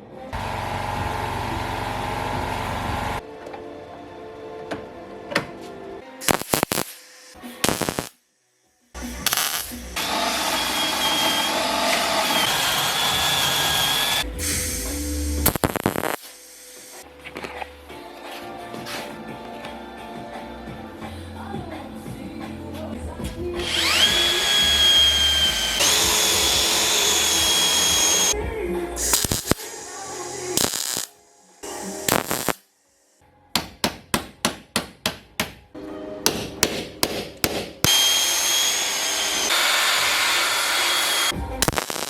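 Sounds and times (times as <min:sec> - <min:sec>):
background music: 0:03.2 - 0:08.3, 0:08.9 - 0:11.5, 0:17.0 - 0:39.3, 0:41.3 - 0:42.0
power tool whining: 0:09.3 - 0:17.0, 0:23.6 - 0:28.4, 0:37.9 - 0:42.0.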